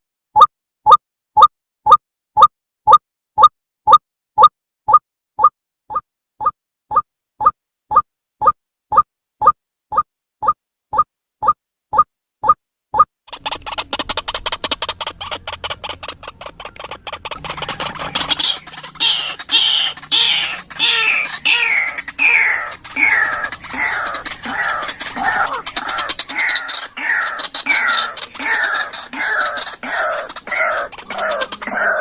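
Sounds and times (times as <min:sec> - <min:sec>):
bird chattering clicks: 0:05.4 - 0:32.0
harsh bird calls: 0:13.3 - 0:32.0.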